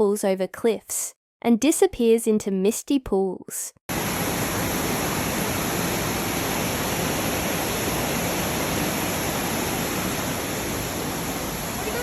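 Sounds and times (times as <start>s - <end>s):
waterfall rushing: 3.9s - 12.0s.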